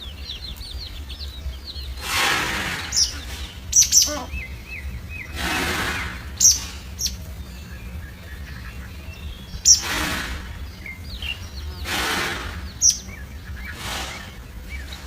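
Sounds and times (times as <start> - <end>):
small birds chirping: 0.0 - 15.0
bursts of hissing noise: 1.8 - 4.4, 5.0 - 7.2, 9.6 - 15.0.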